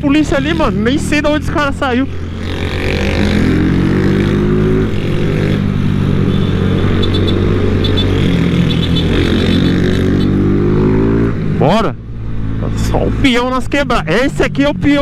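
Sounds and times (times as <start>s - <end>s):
motorcycle engine accelerating: 0.0s - 12.8s.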